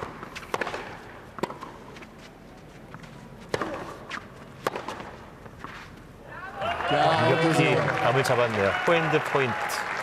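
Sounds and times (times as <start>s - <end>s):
tennis rackets hitting ball: 0.0s - 2.1s, 3.4s - 5.9s.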